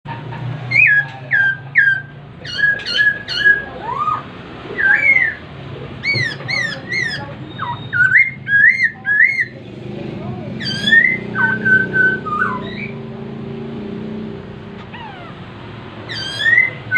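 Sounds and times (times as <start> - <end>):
bird whistling song: 0.7 - 5.4, 6.0 - 9.6, 10.6 - 13.0, 16.1 - 16.9.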